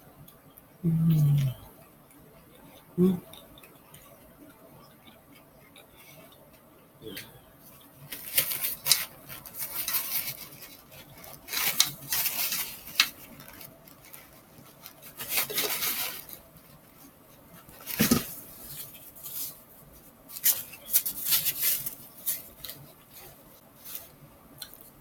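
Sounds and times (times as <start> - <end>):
person chewing with wet mouth sounds: 0.2 - 6.7.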